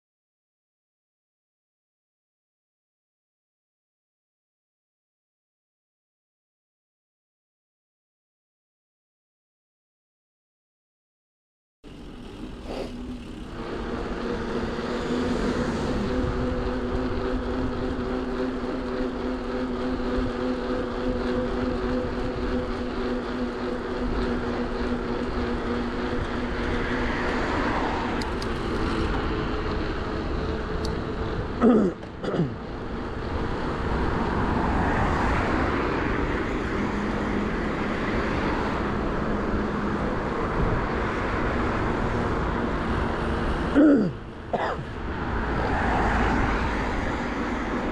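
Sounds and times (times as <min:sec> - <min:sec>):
vehicle engine humming: 0:11.8 - 0:47.9
wind and road noise: 0:11.8 - 0:47.9.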